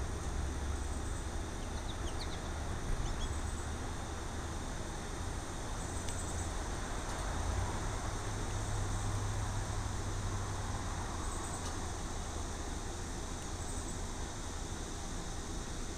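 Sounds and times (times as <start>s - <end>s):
outdoor rumble and hiss: 0.0s - 15.9s
faint bird chirps: 1.0s - 3.6s.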